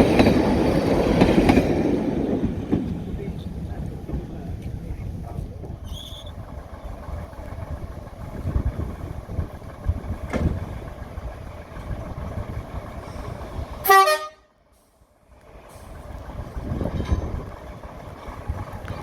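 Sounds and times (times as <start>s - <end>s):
locomotive horn blast: 13.8s - 14.6s.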